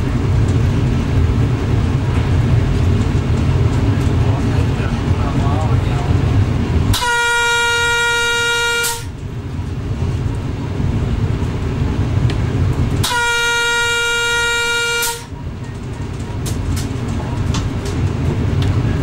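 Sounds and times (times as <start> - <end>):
train running rumble: 0.0 - 19.0
train air horn blasts: 6.9 - 9.2, 13.0 - 15.3.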